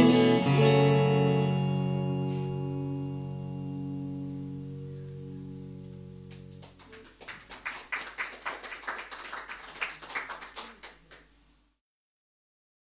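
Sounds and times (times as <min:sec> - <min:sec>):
guitar chord ringing: 0:00.0 - 0:07.1
audience clapping: 0:06.3 - 0:11.4.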